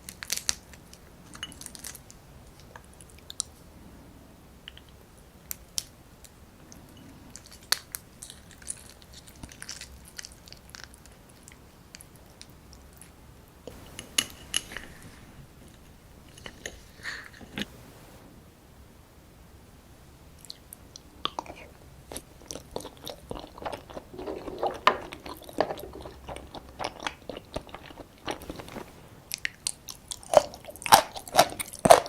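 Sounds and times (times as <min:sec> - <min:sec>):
person biting and chewing crab: 0:21.3 - 0:32.0.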